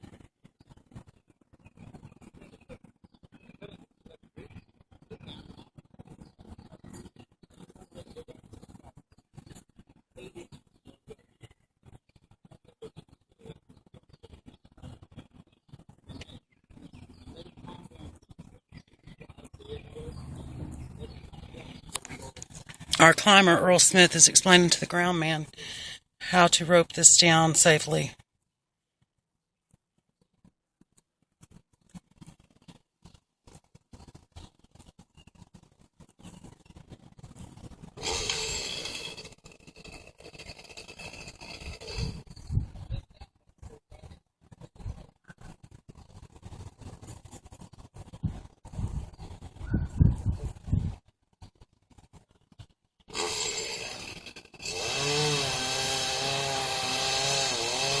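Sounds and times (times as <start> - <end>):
chainsaw cutting wood: 20.2 - 28.0, 38.0 - 42.2, 53.1 - 58.0
faint clicks and rustles: 43.2 - 53.2.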